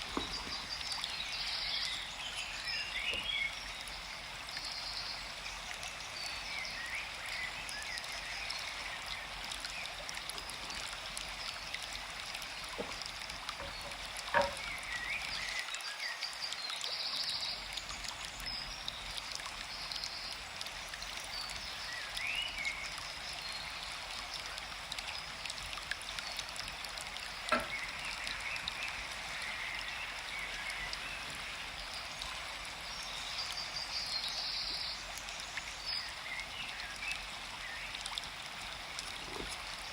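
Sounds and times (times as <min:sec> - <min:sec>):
stream rushing: 0:00.0 - 0:03.5.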